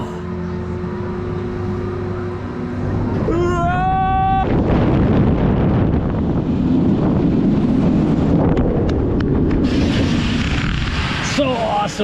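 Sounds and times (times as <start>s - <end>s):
wind buffeting microphone: 3.1s - 12.0s.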